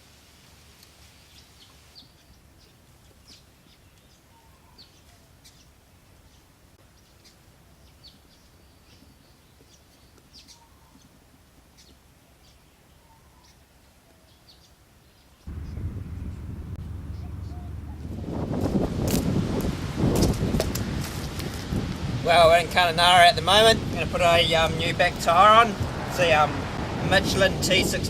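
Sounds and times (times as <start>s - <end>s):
birds chirping: 14.2s - 20.2s
low background rumble: 15.5s - 20.0s.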